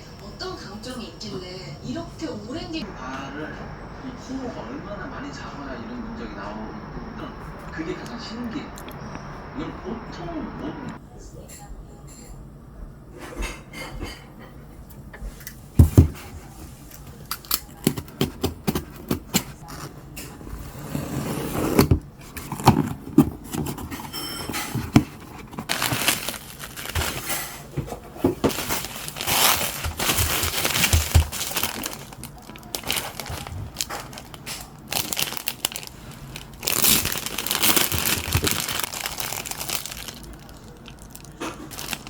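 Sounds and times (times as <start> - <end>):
packaging crinkling and tearing: 22.2 - 42.0.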